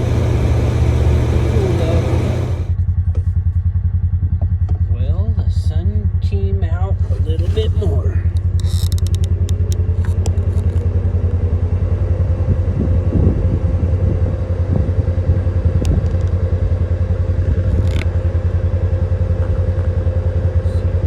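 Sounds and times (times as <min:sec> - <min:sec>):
bumps and scraping: 0:00.0 - 0:03.4, 0:06.9 - 0:10.9
engine running with whine: 0:00.0 - 0:21.0.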